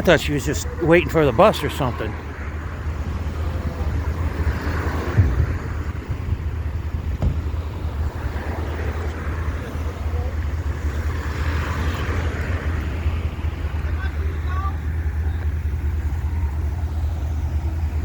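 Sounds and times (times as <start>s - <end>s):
street traffic rumble: 0.0s - 18.0s
short thump: 7.1s - 7.6s.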